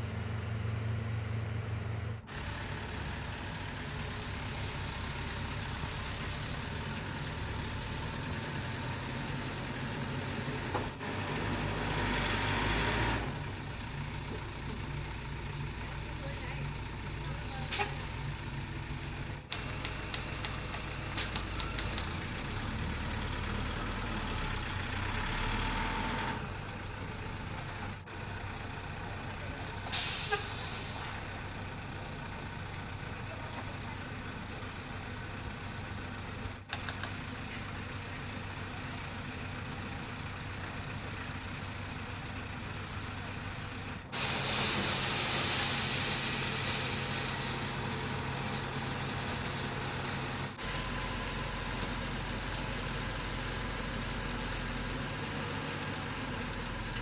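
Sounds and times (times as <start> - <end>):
heavy truck engines running: 0.0 - 57.0
air brakes hissing: 17.7 - 18.0, 29.6 - 31.2, 44.1 - 47.2.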